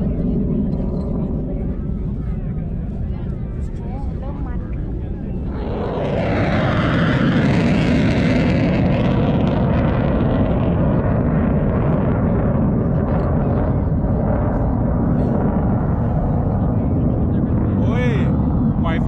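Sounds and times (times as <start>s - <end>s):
aircraft flying past: 4.3s - 19.0s.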